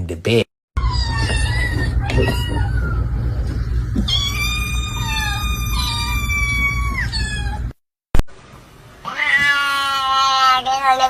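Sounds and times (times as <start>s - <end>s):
animal high-pitched cry: 0.8s - 3.1s, 4.1s - 7.7s
steady low hum: 0.8s - 7.7s.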